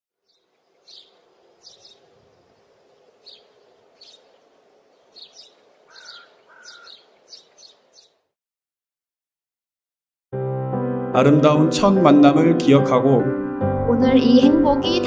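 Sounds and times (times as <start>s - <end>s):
lower whistled bird notes: 0.2s - 8.2s
birds chirping: 0.2s - 8.3s.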